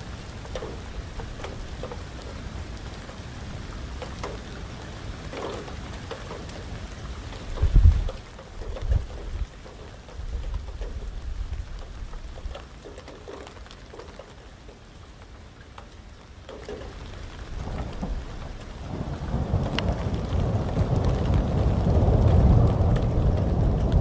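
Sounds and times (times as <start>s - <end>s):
heavy rain pattering: 0.0s - 24.0s
rumble of thunder: 7.6s - 12.5s, 17.4s - 24.0s.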